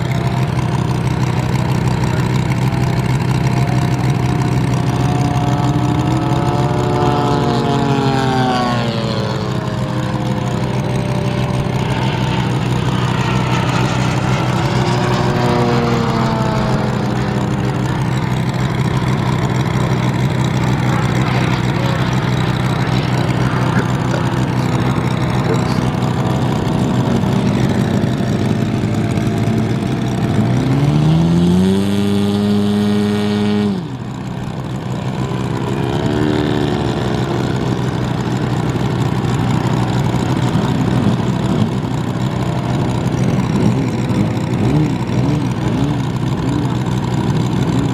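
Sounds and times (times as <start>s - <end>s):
model plane engine running: 0.0s - 47.9s.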